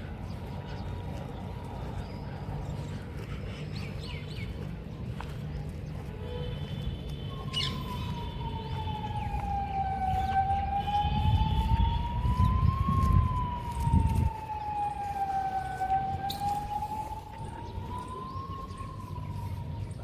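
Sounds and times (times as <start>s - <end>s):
siren wailing: 6.1s - 20.0s.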